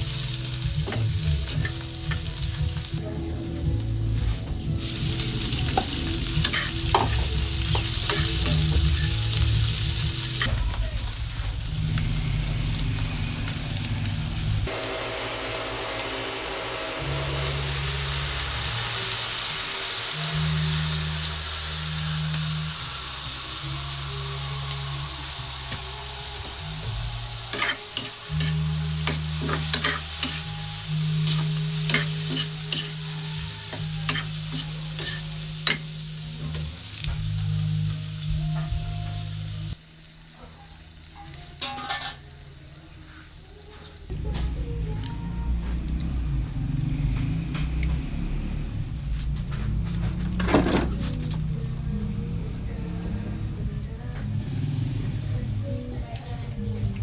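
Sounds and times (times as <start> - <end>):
meat sizzling in a hot pan: 0.0 - 44.1.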